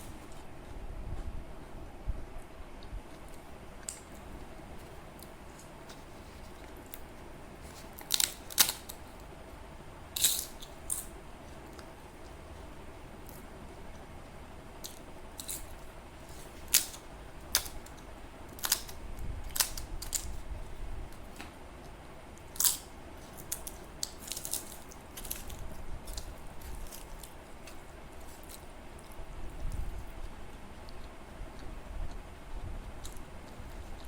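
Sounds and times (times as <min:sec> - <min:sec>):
person chewing with crunches: 0:02.8 - 0:09.4, 0:14.8 - 0:34.0.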